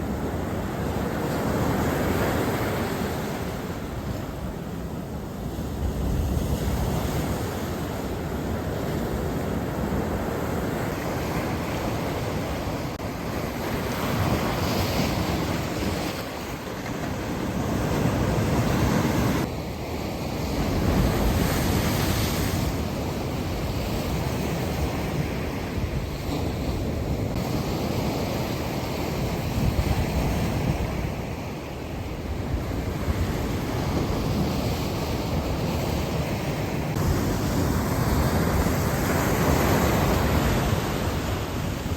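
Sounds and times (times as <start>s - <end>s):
sea waves breaking on beach: 0.0s - 41.9s
wind buffeting microphone: 20.4s - 41.9s.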